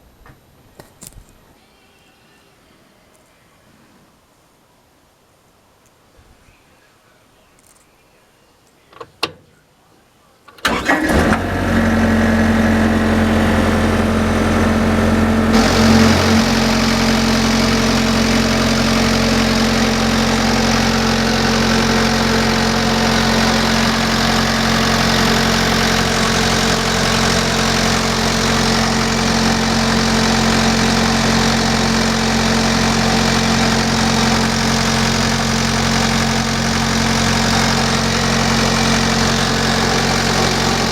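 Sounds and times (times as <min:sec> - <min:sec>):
diesel engine idling: 0:10.6 - 0:40.9.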